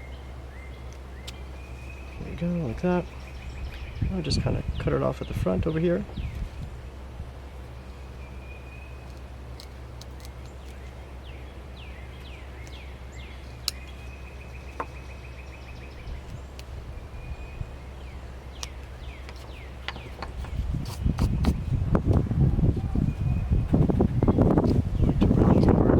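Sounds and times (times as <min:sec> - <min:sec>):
birds chirping: 0:00.0 - 0:25.9
steady low hum: 0:00.0 - 0:25.9
knife cutting into wood: 0:20.2 - 0:21.6.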